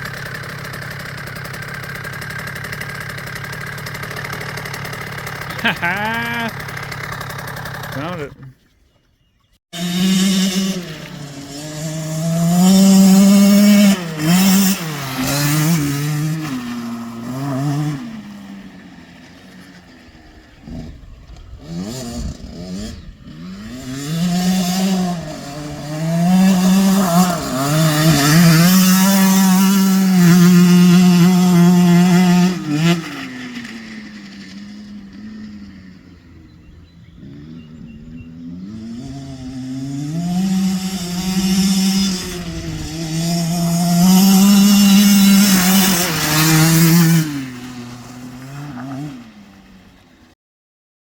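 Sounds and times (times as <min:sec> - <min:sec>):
dirt bike engine revving: 0:00.2 - 0:08.3, 0:09.8 - 0:49.7.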